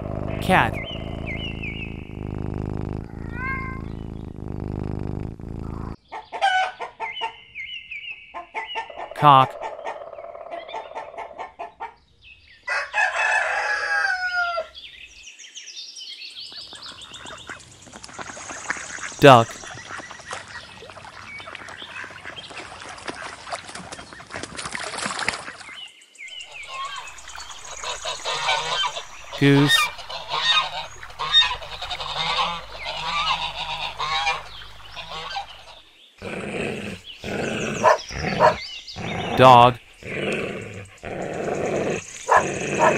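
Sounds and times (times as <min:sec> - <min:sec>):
faint high chirping: 0:00.6 - 0:04.4
rooster crowing: 0:12.7 - 0:14.7
geese honking: 0:26.5 - 0:35.8
rooster clucking: 0:26.6 - 0:35.8, 0:37.2 - 0:38.6.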